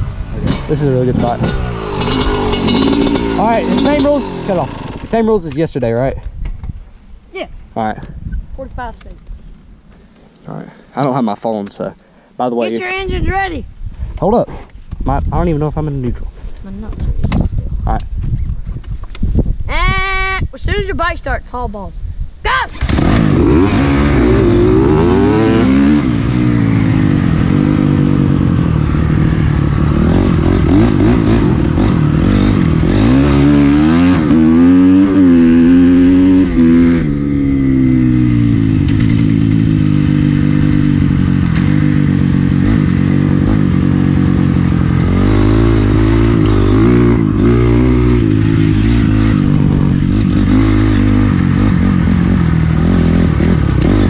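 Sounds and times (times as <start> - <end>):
dirt bike engine revving: 0.0 - 5.5, 22.7 - 54.0.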